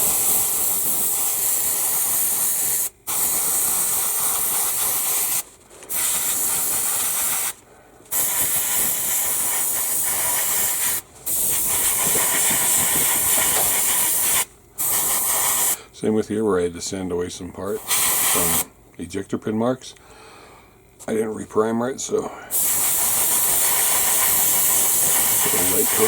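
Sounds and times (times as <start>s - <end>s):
airbrush spraying paint: 0.0s - 15.8s, 17.8s - 18.7s, 22.5s - 26.0s.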